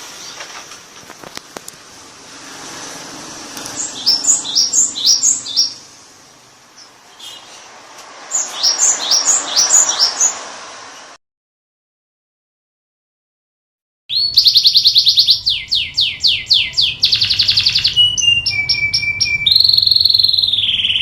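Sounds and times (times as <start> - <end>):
canary singing: 3.5 - 5.9, 6.7 - 10.4, 14.1 - 21.0.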